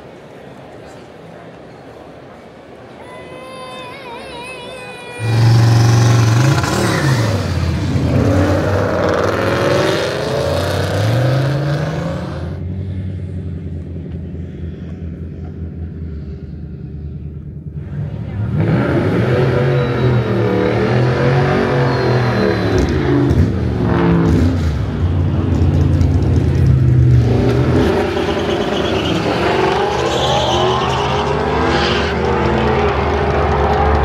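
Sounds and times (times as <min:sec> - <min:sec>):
car engine starting and revving: 0:05.2 - 0:14.4, 0:17.7 - 0:34.0.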